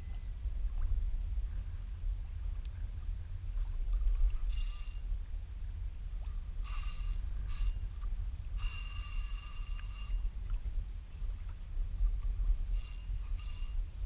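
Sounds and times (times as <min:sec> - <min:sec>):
steady low rumble: 0:00.0 - 0:14.0
fishing reel whirring: 0:04.4 - 0:05.1, 0:06.6 - 0:08.0, 0:08.6 - 0:10.4, 0:12.6 - 0:14.0.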